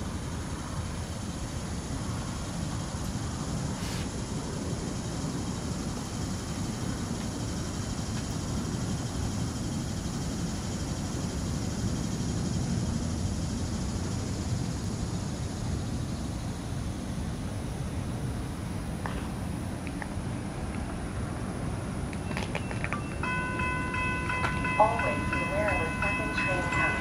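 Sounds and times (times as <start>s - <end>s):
train wheels rumbling on track: 0.0s - 17.3s, 18.7s - 27.0s.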